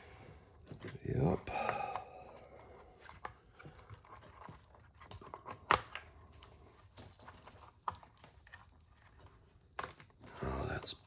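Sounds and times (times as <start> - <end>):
small parts clicking and rattling: 6.4 - 10.2.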